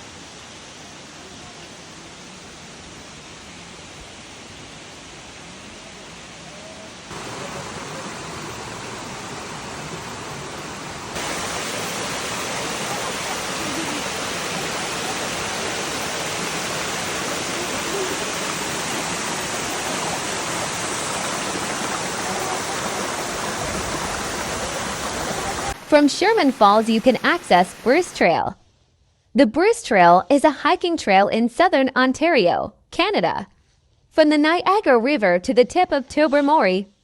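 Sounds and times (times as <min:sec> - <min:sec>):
waterfall rushing water: 0:00.0 - 0:28.2.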